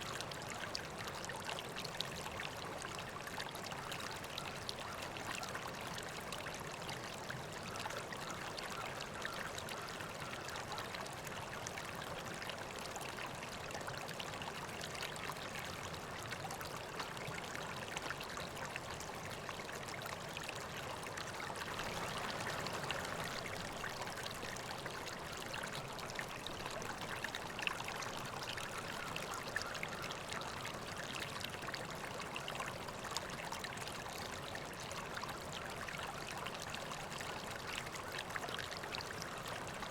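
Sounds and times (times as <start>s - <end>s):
river water flowing over rocks: 15.1s - 39.9s
water splashes: 21.7s - 24.5s.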